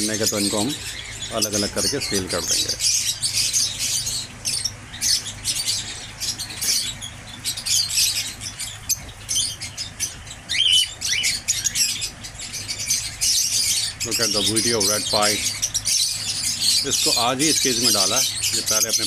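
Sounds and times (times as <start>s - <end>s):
loud bird call: 0.0s - 19.0s
small birds chirping: 0.0s - 19.0s
steady low hum: 0.0s - 19.0s.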